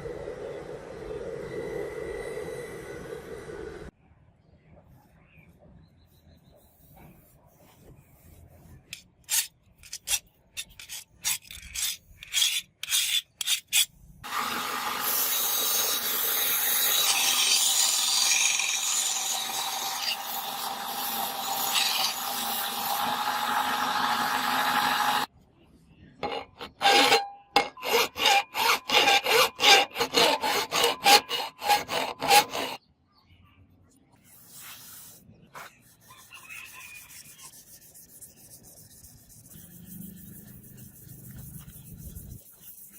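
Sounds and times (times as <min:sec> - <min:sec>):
file rasping on steel: 0:08.9 - 0:13.9, 0:15.0 - 0:25.3, 0:26.2 - 0:32.8.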